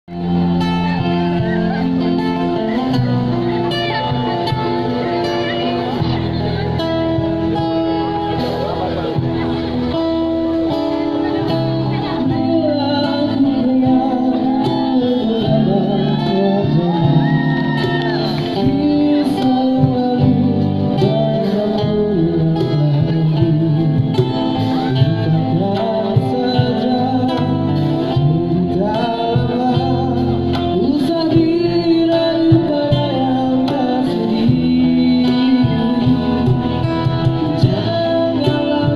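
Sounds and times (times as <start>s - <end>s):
guitar: 0.0s - 38.9s
man singing: 10.5s - 38.9s.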